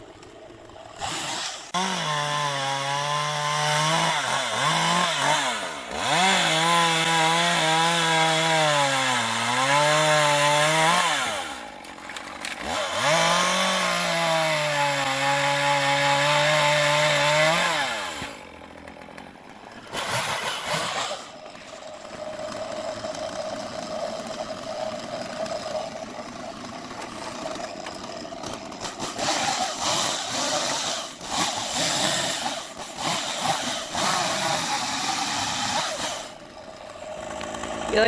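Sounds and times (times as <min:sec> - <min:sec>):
chainsaw idling and revving: 0:00.0 - 0:38.0.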